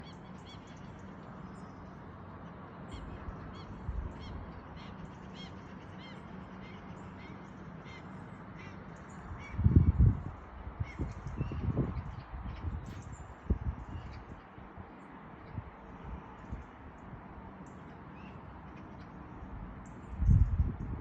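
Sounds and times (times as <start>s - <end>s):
steady low rumble: 9.2s - 14.8s, 19.4s - 21.0s.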